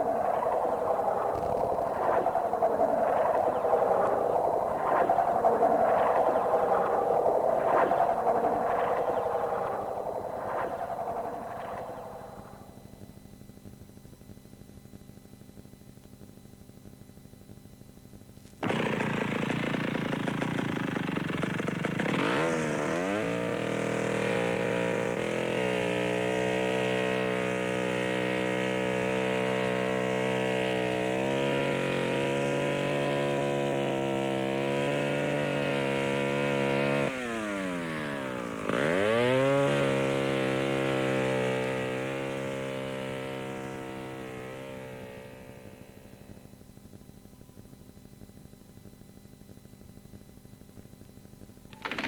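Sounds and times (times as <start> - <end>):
motor buzzing and revving: 0.0 - 7.2, 18.6 - 46.4.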